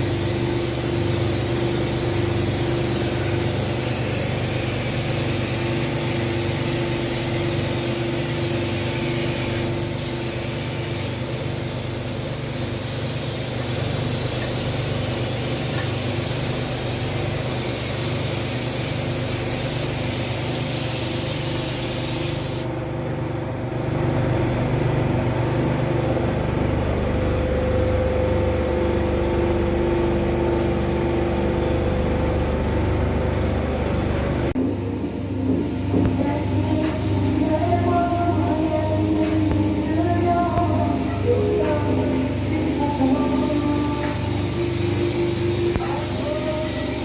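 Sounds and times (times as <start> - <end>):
hiss of air: 0.0 - 22.7, 34.6 - 47.0
steady mechanical hum: 0.0 - 47.0.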